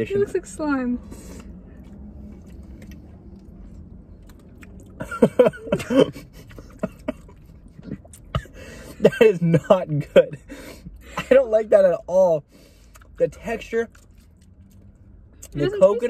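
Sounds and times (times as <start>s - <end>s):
people chewing: 1.1s - 8.5s, 13.8s - 15.6s.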